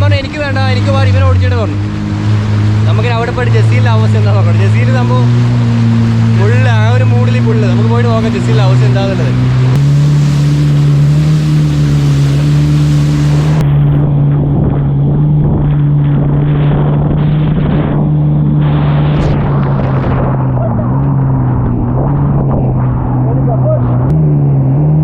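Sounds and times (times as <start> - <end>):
rushing water: 0.0 - 24.2
wind noise: 0.0 - 24.7
jet ski engine drone: 0.0 - 25.0.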